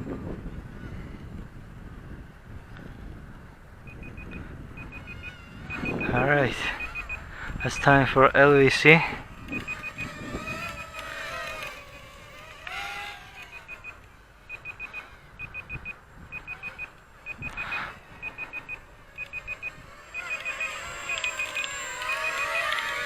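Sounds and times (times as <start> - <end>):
small motors whining: 0.0 - 23.0
short high alarm beeps: 3.9 - 8.0, 9.5 - 10.9, 13.5 - 22.8.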